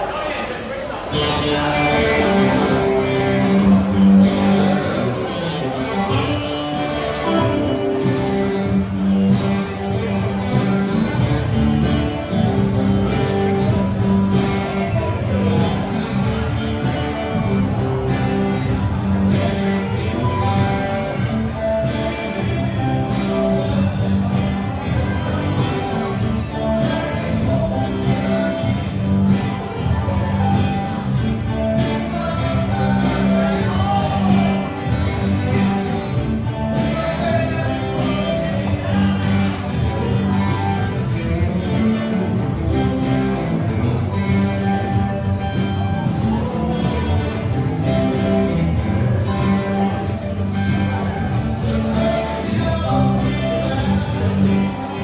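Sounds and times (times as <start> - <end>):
electric guitar: 1.0 - 55.0
bass guitar: 1.1 - 55.0
person singing: 1.2 - 8.6, 19.0 - 44.2, 45.8 - 55.0
steady drum beat: 6.2 - 54.9.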